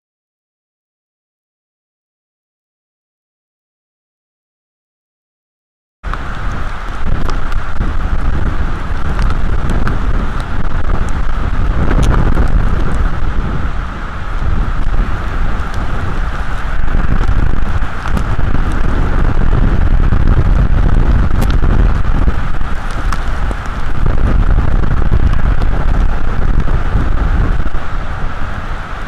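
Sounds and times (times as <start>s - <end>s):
rain hissing: 6.1s - 29.0s
raindrops ticking: 6.1s - 29.0s
wind buffeting microphone: 6.1s - 29.0s.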